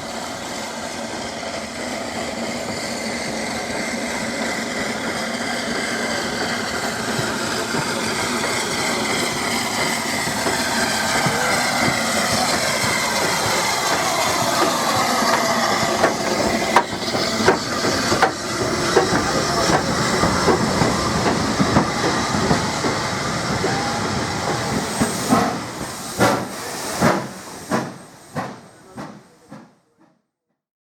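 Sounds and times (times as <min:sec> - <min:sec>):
steam train running past: 0:00.0 - 0:30.2
wheels clicking over rail joints: 0:06.7 - 0:23.8.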